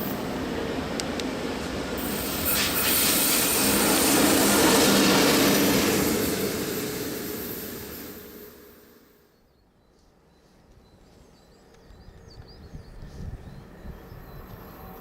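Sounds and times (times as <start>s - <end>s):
train passing: 0.0s - 11.1s.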